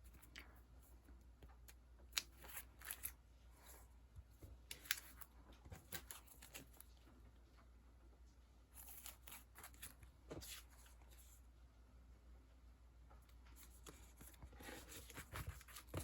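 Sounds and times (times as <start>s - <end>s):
sticker sheets rustling: 13.5s - 16.0s.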